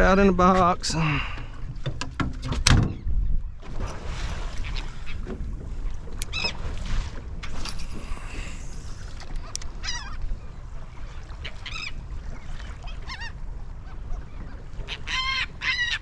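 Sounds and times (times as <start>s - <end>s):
seabirds calling: 4.4s - 16.0s.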